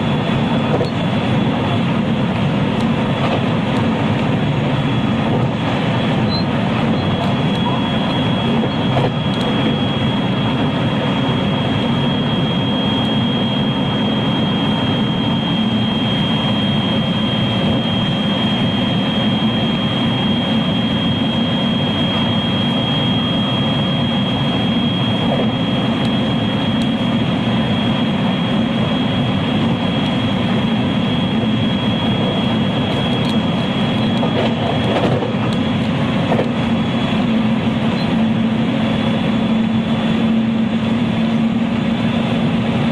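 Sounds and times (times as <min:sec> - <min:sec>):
train wheels rumbling on rail: 0:00.0 - 0:11.4, 0:25.2 - 0:27.0, 0:31.3 - 0:38.8
high-pitched motor whine: 0:00.0 - 0:42.9.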